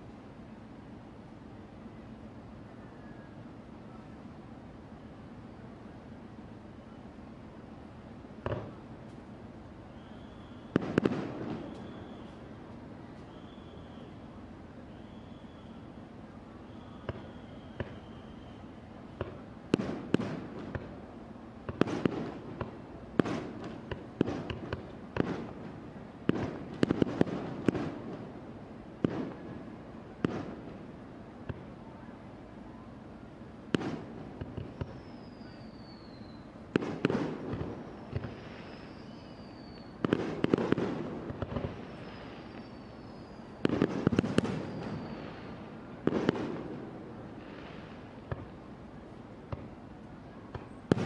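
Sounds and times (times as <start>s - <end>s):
fireworks booming: 8.4s - 8.8s, 10.0s - 12.4s, 19.1s - 21.0s, 21.6s - 28.4s, 29.0s - 31.7s, 33.7s - 48.6s, 50.5s - 51.0s.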